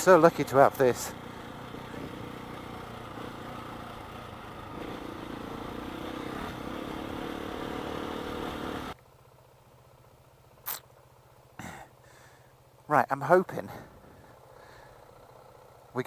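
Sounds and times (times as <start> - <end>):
motorcycle engine: 0.0 - 16.0.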